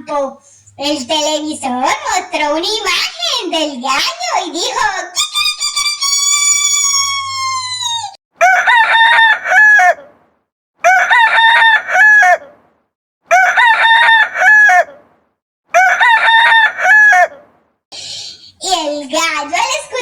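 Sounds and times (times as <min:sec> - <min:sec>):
rooster crowing: 0:15.8 - 0:17.3.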